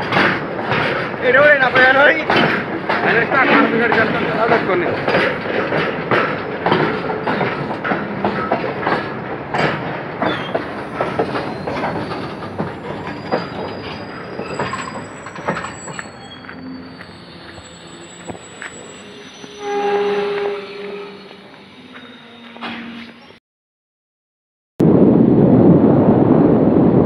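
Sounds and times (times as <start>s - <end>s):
wheels clacking over rail joints: 0.0s - 23.3s
freight wagons rolling past: 0.0s - 23.4s
high wheel squeal: 10.2s - 23.4s.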